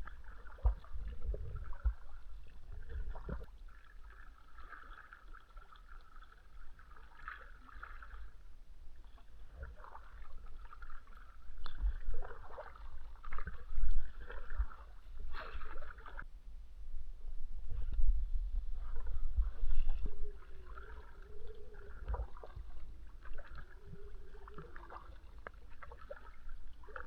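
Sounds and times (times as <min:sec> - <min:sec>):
kayak splashing water: 0:00.0 - 0:08.5, 0:09.2 - 0:16.3, 0:18.9 - 0:27.0
low rumble: 0:13.6 - 0:25.4.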